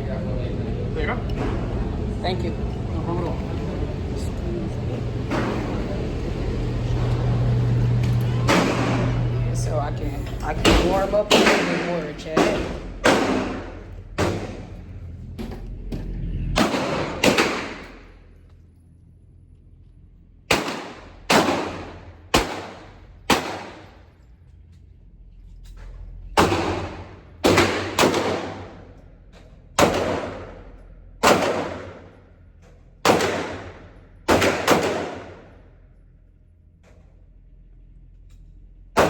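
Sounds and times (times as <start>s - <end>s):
gunshot echo off walls: 16.6s - 18.0s, 20.5s - 24.0s, 26.4s - 28.8s, 29.8s - 32.2s, 33.0s - 35.6s
pistol shots: 16.6s - 18.0s, 20.5s - 24.0s, 26.4s - 28.9s, 29.8s - 30.6s, 31.2s - 32.2s, 33.0s - 35.6s.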